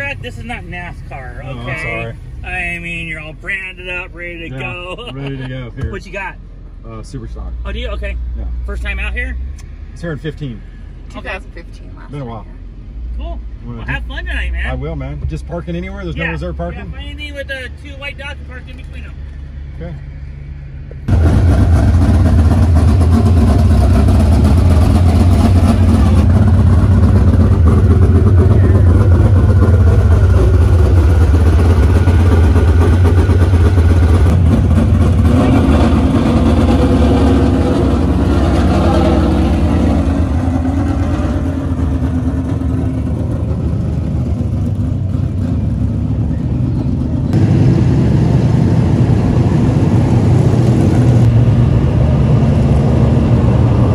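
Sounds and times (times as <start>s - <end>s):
race car engine running loud: 21.0s - 53.9s.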